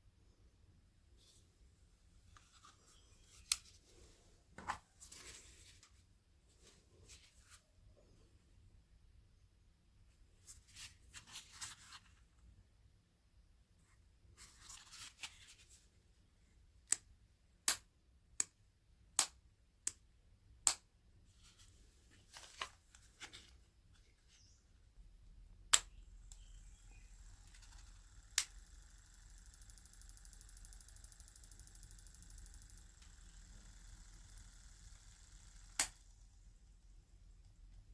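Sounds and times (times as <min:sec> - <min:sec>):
small motor humming and whining: 0:26.2 - 0:36.5.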